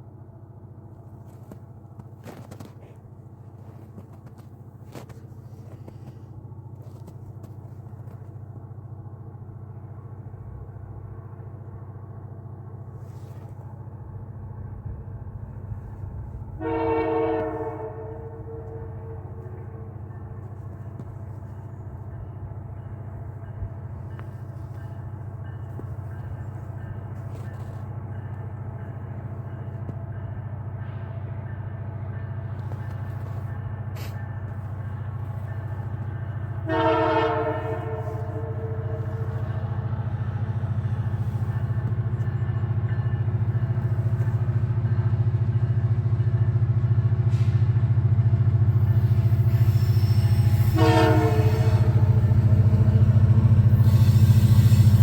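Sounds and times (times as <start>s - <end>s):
locomotive engine drone: 0.0s - 55.0s
train horn blasts: 16.4s - 28.9s, 32.6s - 43.4s, 48.7s - 55.0s
wheel and rail hiss: 33.1s - 36.0s, 47.3s - 47.7s, 53.4s - 55.0s.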